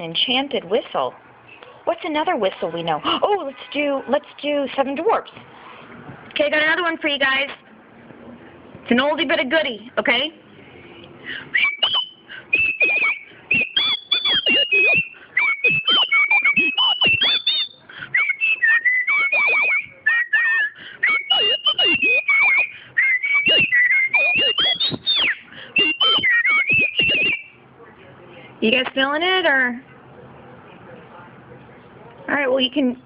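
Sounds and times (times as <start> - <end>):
woman whistling a tune: 11.3 - 27.5.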